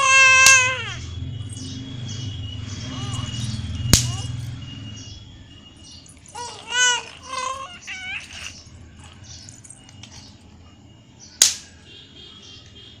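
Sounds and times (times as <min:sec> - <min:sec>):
baby squealing: 0:00.0 - 0:01.0, 0:02.8 - 0:03.5, 0:04.1 - 0:04.4, 0:06.2 - 0:09.6.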